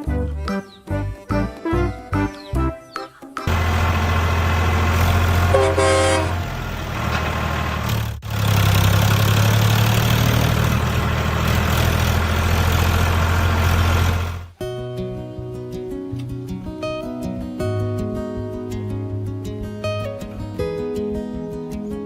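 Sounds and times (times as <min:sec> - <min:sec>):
truck engine running: 0:03.4 - 0:14.6
truck horn honk: 0:05.3 - 0:06.6.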